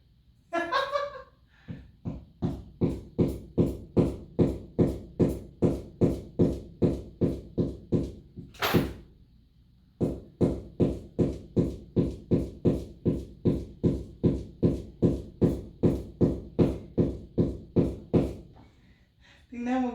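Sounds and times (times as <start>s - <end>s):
rapid evenly spaced knocks: 10.0s - 18.4s.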